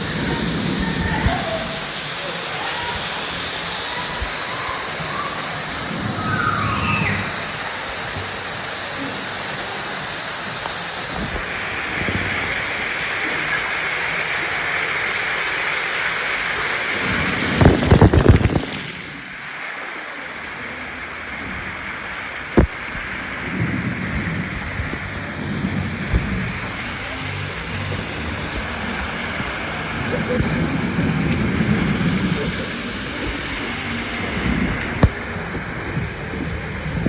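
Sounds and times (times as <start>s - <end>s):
rushing water: 0.0s - 37.0s
heavy thumps and buffeting: 23.6s - 29.6s.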